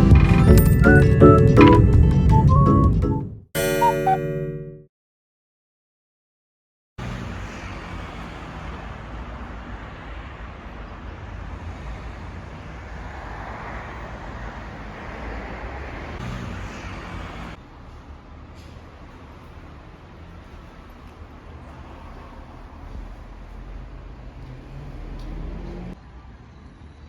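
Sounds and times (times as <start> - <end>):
vehicle road noise rumble: 7.0 - 27.0.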